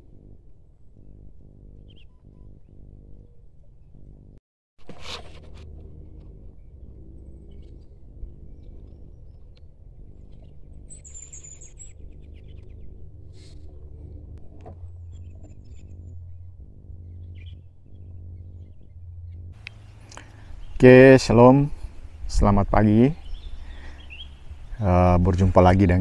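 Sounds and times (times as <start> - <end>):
wild birds chirping: 0.0 - 4.4, 5.8 - 26.0
low hum: 0.0 - 26.0.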